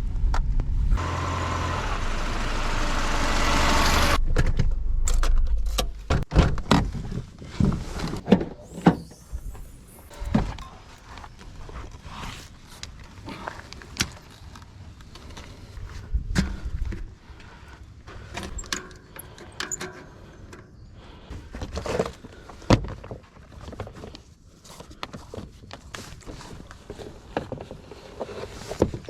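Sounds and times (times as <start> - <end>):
tyres rumbling: 0.8 - 4.8.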